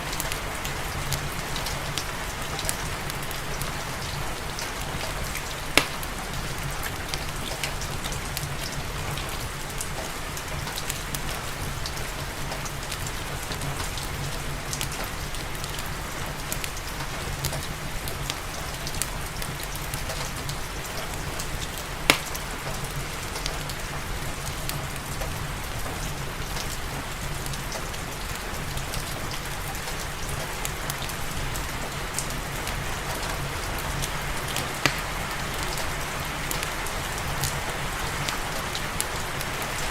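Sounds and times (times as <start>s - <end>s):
steady rain: 0.0s - 39.9s
wood fire crackling: 0.0s - 39.9s
fire popping: 4.2s - 8.8s, 10.6s - 30.9s, 34.4s - 35.8s.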